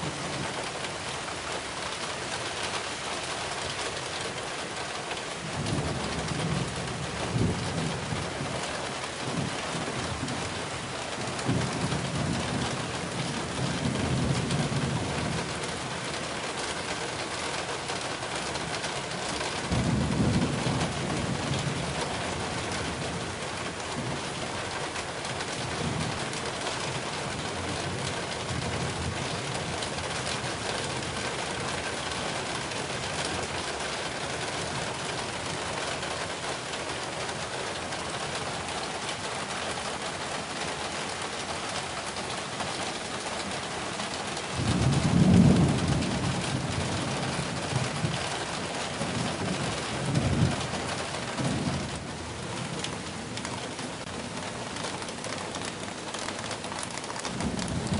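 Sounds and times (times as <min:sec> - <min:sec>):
heavy rain hissing: 0:27.3 - 0:57.9.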